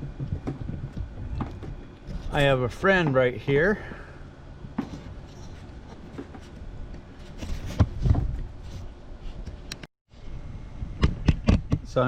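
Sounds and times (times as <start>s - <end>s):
wind buffeting microphone: 0.0s - 3.7s.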